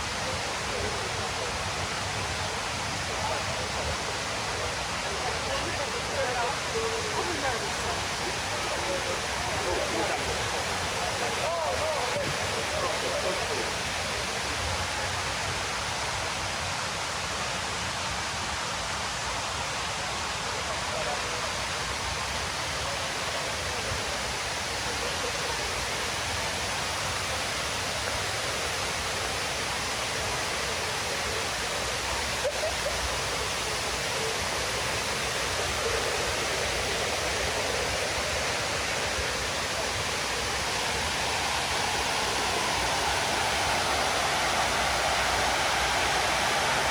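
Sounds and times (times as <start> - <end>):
water pouring down walls: 22.8 - 46.9.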